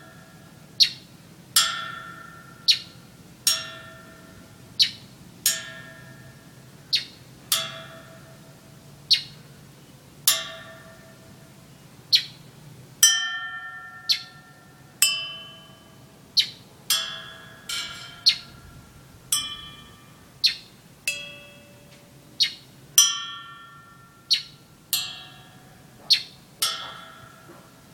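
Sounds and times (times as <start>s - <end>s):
bird chirping: 0.8s - 1.1s, 2.6s - 3.0s, 4.8s - 5.1s, 6.9s - 7.2s, 9.1s - 10.0s, 11.7s - 12.5s, 14.0s - 14.6s, 16.4s - 16.7s, 17.7s - 18.8s, 19.4s - 21.8s, 22.4s - 22.7s, 24.2s - 24.6s, 26.0s - 27.7s.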